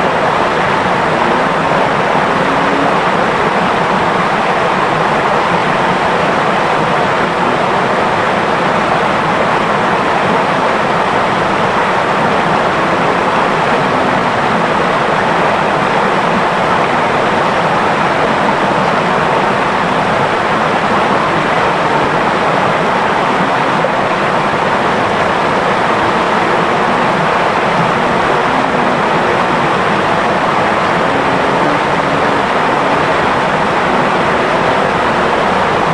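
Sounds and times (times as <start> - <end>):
river flowing and babbling: 0.0 - 35.9.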